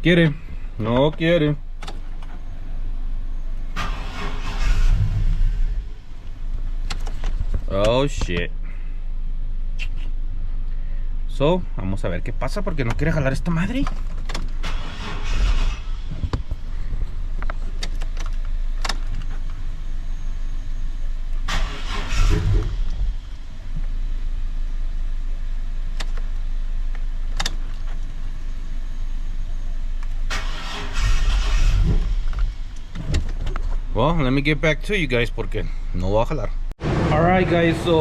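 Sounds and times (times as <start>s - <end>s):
engine cranking without starting: 3.7s - 5.8s, 14.1s - 16.3s, 21.4s - 23.2s, 30.2s - 33.5s.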